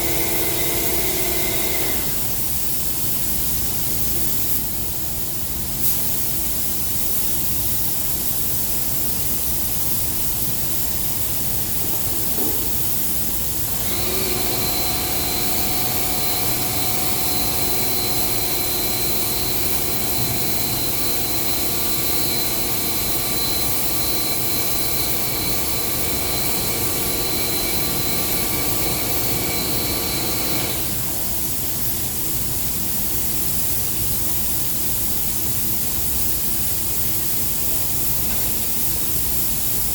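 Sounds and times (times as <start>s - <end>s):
motor whine: 0.0s - 2.2s, 13.7s - 31.3s
spray gun air hiss: 5.8s - 6.4s, 9.7s - 33.0s.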